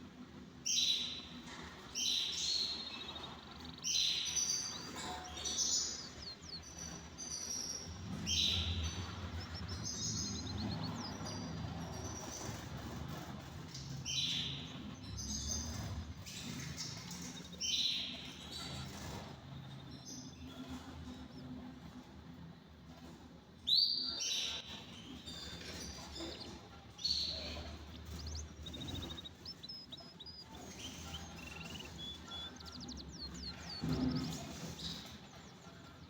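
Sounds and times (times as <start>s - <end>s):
canaries chirping and trilling: 0.0s - 36.0s.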